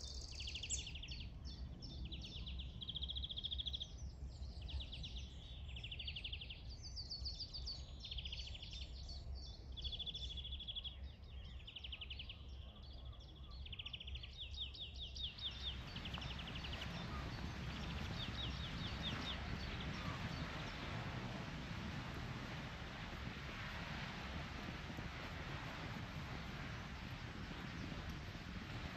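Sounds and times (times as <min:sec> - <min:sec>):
birds trilling: 0:15.3 - 0:28.9
steady rushing noise: 0:15.4 - 0:28.9.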